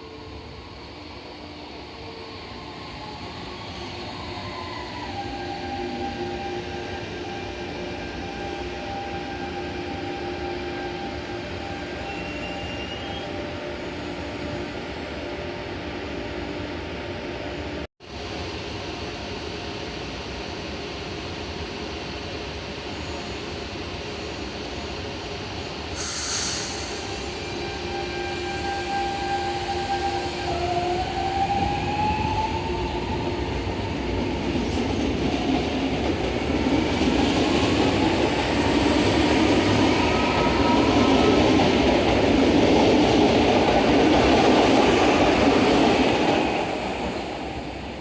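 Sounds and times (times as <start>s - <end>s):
electric train whine: 0.0s - 48.0s
train rumble: 17.8s - 48.0s
air hiss: 25.9s - 27.6s.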